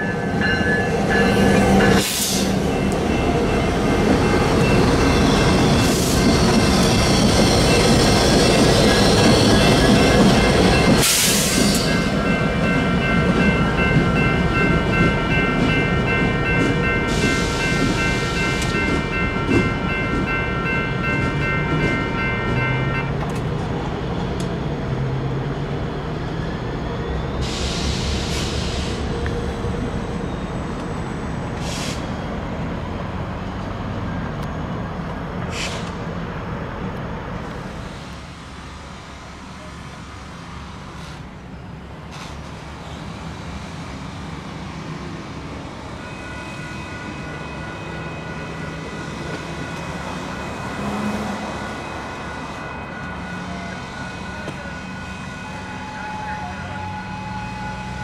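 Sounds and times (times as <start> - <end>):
crossing warning bell: 0.0 - 23.5, 45.5 - 58.0
freight train wheel rumble: 0.0 - 46.0.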